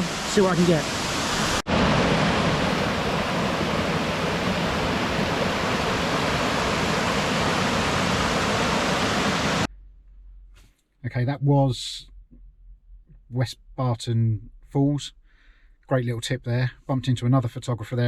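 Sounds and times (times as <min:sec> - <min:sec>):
waterfall rushing: 0:00.0 - 0:09.7.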